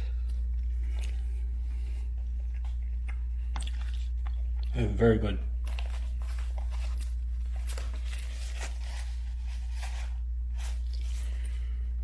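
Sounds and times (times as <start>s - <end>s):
low hum: 0.0s - 12.0s
eating noises: 2.3s - 4.9s.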